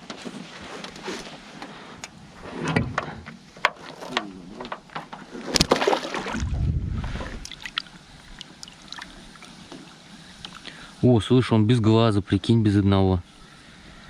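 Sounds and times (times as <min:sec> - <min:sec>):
knocks and clicks in a boat: 0:02.6 - 0:06.0
water lapping: 0:05.2 - 0:10.9
low rumble: 0:06.3 - 0:07.5.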